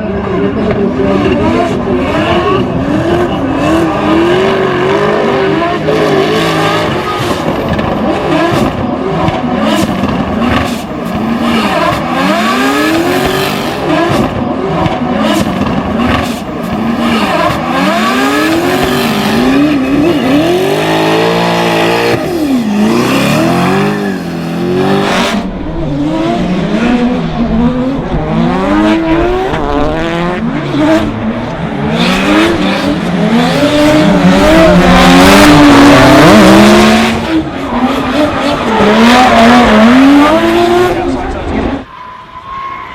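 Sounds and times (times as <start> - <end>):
car engine revving: 0.0 - 41.9
tyre squeal: 18.5 - 21.6, 22.3 - 25.3, 41.8 - 42.9.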